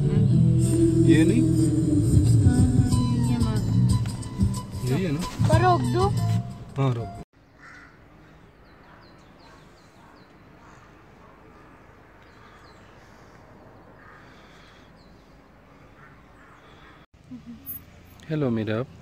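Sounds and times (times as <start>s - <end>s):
birds chirping: 6.8s - 19.0s.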